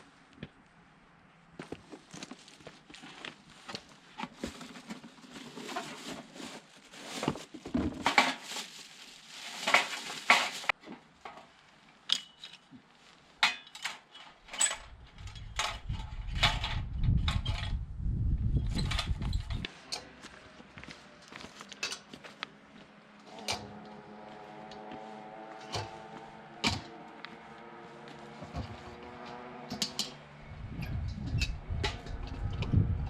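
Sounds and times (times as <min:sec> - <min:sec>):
metal camp gear clinking: 0:12.1 - 0:12.7, 0:13.5 - 0:17.7
low rumble: 0:15.0 - 0:19.6, 0:30.4 - 0:33.0
footsteps on gravel: 0:20.2 - 0:22.9.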